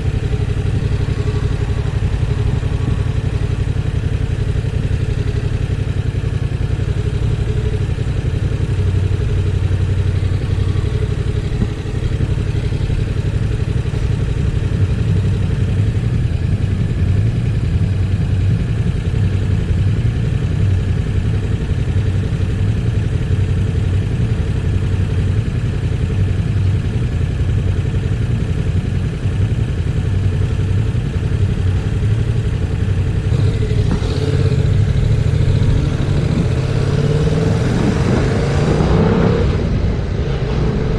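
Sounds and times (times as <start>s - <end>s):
motorcycle engine running: 0.0s - 40.9s
wind buffeting microphone: 33.7s - 40.9s.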